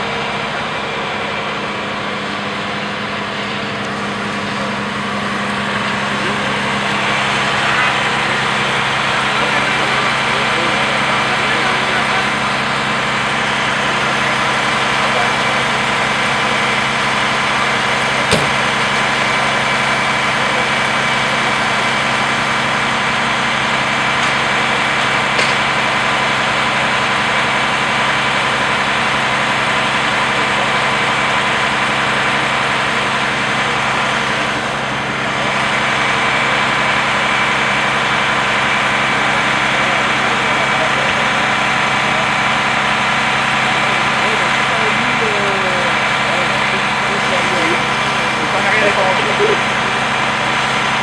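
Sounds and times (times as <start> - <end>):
large vehicle engine idling: 0.0 - 51.0
sharp click: 18.3 - 18.7.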